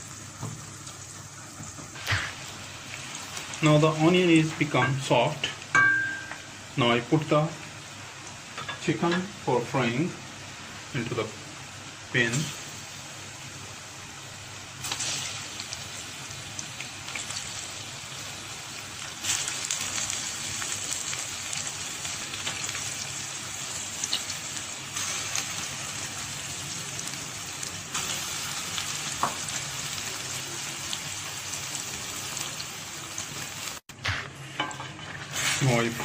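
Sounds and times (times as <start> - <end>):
chicken sizzling in hot oil: 0.0 - 33.9, 34.5 - 36.0.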